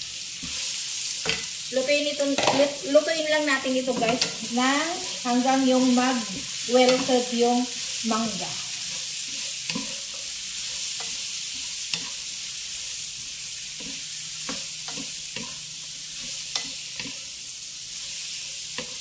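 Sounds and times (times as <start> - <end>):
mango strips sizzling in a pan: 0.0 - 19.0
utensil knocking and scraping pan: 2.3 - 2.7.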